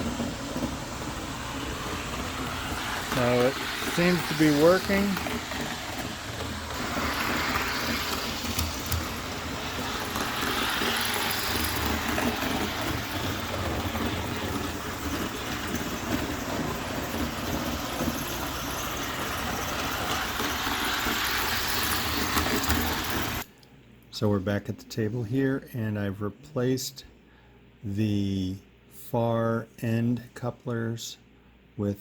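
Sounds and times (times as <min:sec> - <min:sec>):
model train motor whirring: 0:00.0 - 0:23.5
wheels rolling on rails: 0:00.0 - 0:23.5.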